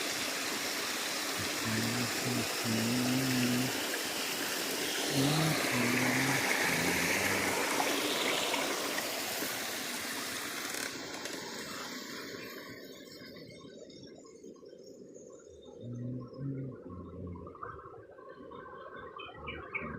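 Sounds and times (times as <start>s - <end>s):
stream water flowing: 0.0s - 15.3s
low pitched hum: 1.4s - 3.8s, 5.0s - 9.4s, 15.6s - 18.1s.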